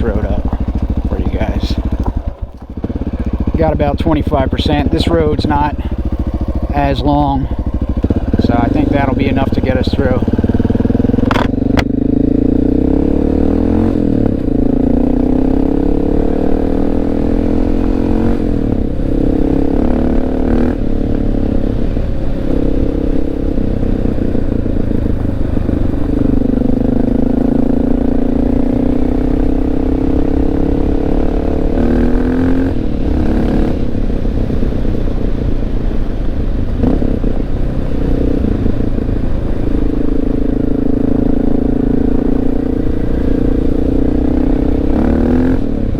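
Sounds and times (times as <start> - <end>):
tyres rumbling on gravel: 0.0 - 11.8
motorcycle engine revving: 0.0 - 45.9.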